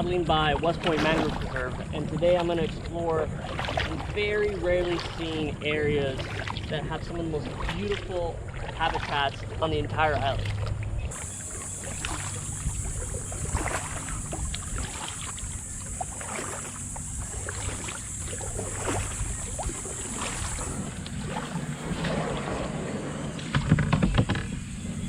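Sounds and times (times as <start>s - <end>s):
paddle strokes splashing water: 0.0s - 25.0s
wind on microphone: 0.0s - 25.0s
steady high hiss: 11.1s - 21.9s.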